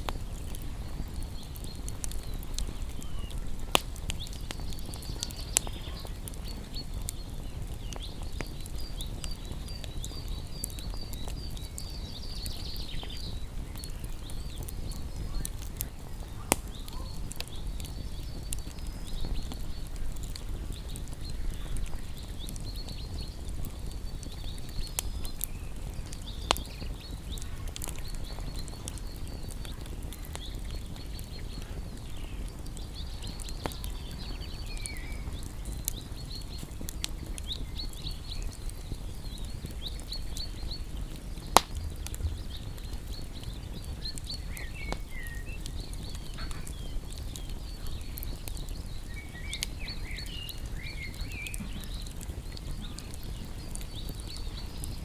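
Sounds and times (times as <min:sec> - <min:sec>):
songbirds chirping: 0:00.0 - 0:55.0
wood fire crackling and popping: 0:00.0 - 0:55.0.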